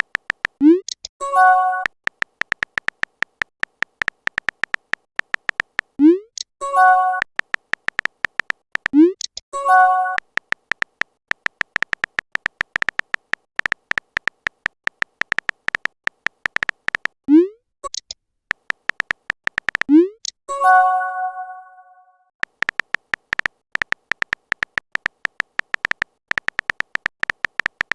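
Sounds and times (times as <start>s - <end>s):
rapid typing clicks: 0.0s - 1.0s, 1.7s - 6.0s, 7.1s - 9.4s, 10.1s - 17.2s, 17.9s - 19.9s, 22.4s - 27.9s
bell-like message chime: 20.5s - 22.1s.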